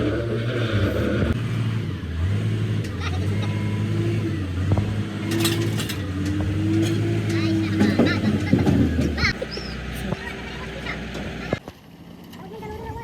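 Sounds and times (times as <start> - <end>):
large engine running: 0.0 - 13.0.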